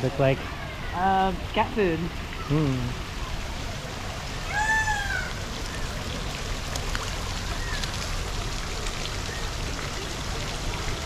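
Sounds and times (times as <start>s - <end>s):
running water: 0.0s - 11.0s
bird meow-like call: 4.4s - 5.9s.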